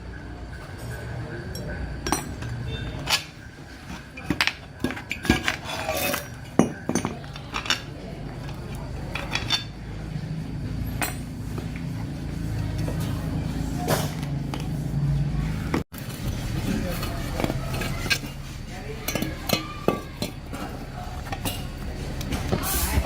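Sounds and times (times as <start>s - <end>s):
metal tools clinking: 0.6s - 9.9s, 16.6s - 23.0s.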